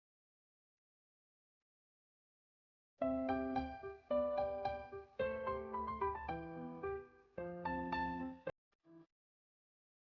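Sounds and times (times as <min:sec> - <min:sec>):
keyboard melody: 0:03.0 - 0:08.5.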